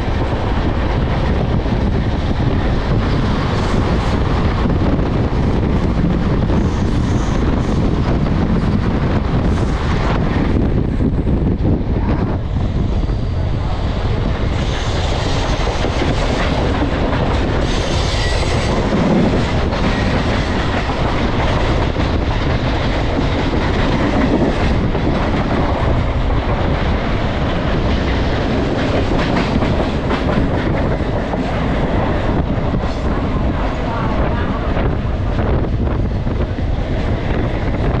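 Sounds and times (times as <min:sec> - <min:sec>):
train running noise: 0:00.0 - 0:38.0
train wheels clattering: 0:14.4 - 0:34.8.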